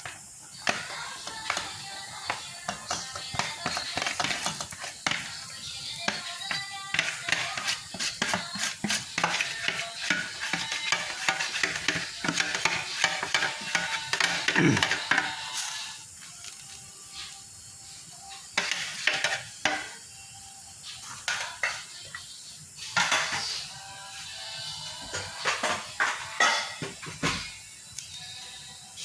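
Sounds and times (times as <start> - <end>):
food sizzling in pan: 0.0 - 27.1
utensil scraping food in pan: 0.5 - 16.0, 18.5 - 19.9
utensil knocking against pan: 6.1 - 15.3.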